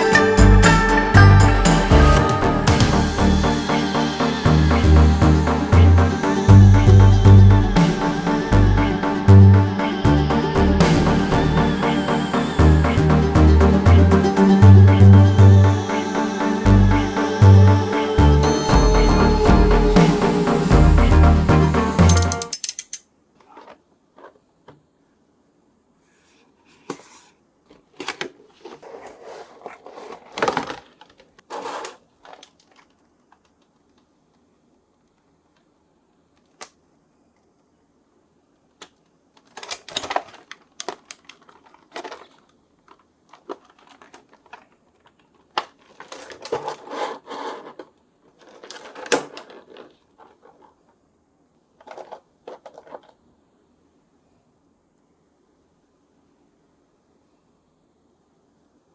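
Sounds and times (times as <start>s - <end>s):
toy packaging crinkling and clicking: 27.9s - 34.1s, 38.8s - 50.8s, 51.8s - 53.2s.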